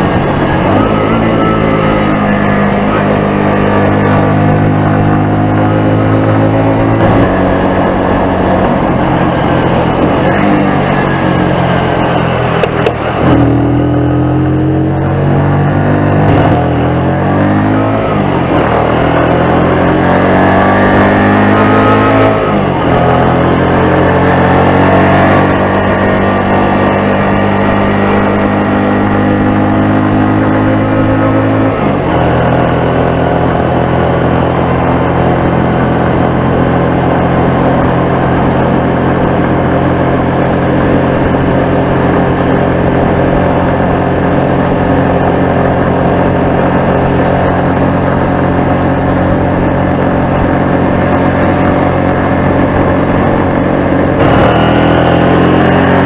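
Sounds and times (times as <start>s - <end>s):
motorcycle engine running: 0.0s - 56.0s
rush of air and road noise: 0.0s - 56.0s.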